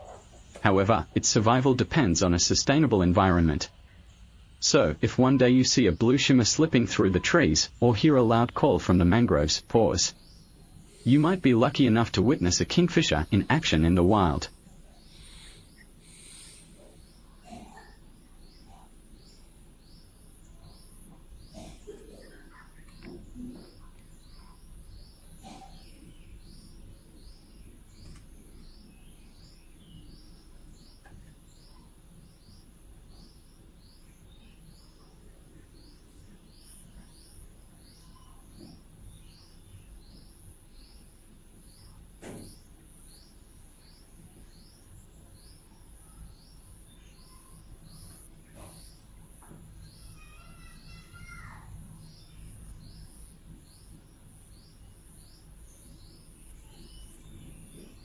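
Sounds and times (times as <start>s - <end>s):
bird chirping: 0.0s - 58.0s
high insect buzz: 10.1s - 21.9s.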